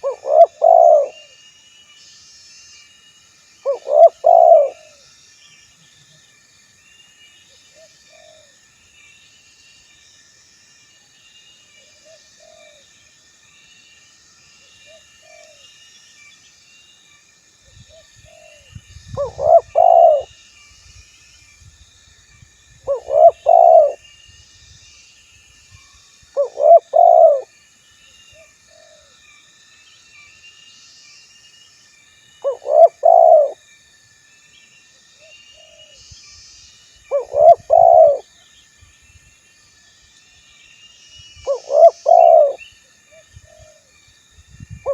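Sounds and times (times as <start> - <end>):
birds chirping: 0.0 - 1.2, 3.6 - 4.9, 19.2 - 20.3, 22.9 - 24.0, 26.4 - 27.4, 32.4 - 33.6, 35.3 - 38.2, 41.1 - 42.8
dove cooing: 0.0 - 1.3, 3.6 - 5.0, 19.2 - 20.3, 22.9 - 24.0, 26.4 - 27.5, 32.4 - 33.6, 37.1 - 38.3, 41.5 - 42.6.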